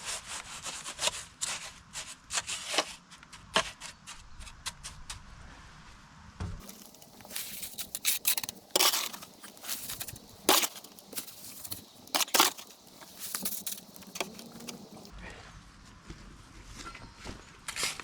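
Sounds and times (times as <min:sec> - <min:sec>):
gritty scraping and crunching: 0:06.6 - 0:15.1.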